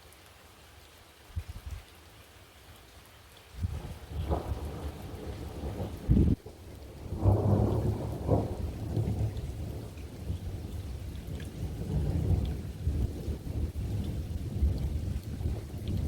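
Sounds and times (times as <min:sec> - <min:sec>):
rain: 0:00.0 - 0:16.0
thunder rumbling: 0:03.7 - 0:16.0.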